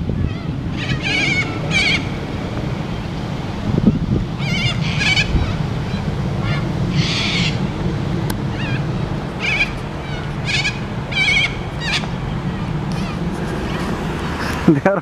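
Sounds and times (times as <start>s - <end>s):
birds warbling calls: 0.0s - 14.9s
steady low rumble: 0.0s - 15.0s
harsh rasping bird call: 0.1s - 3.1s, 3.9s - 7.7s, 8.5s - 14.6s.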